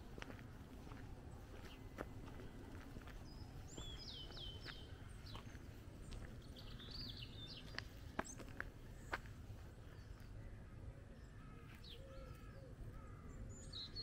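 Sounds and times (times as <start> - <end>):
footsteps on tarmac: 0.0 - 10.3
songbird singing: 0.0 - 14.0.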